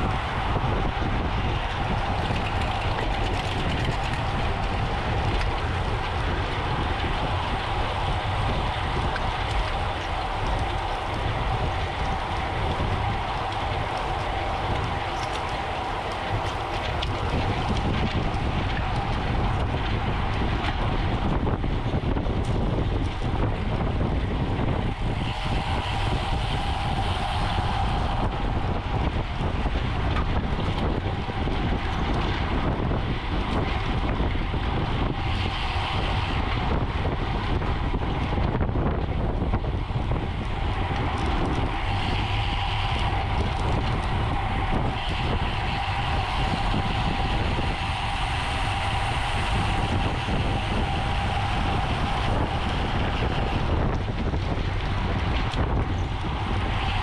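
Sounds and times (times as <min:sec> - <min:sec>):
road and drivetrain noise: 0:00.0 - 0:57.0
steady hum: 0:00.0 - 0:57.0
wind rush over microphone: 0:00.0 - 0:57.0.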